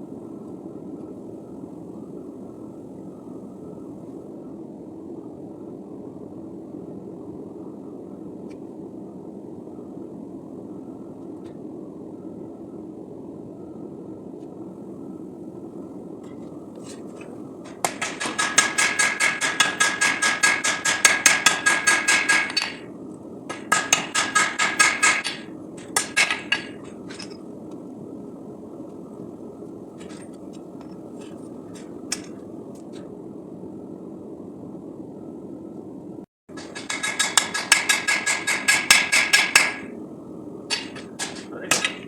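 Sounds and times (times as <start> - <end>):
hammer striking steel on anvil: 17.7 - 22.8, 23.5 - 27.4, 36.5 - 39.9, 40.7 - 42.0.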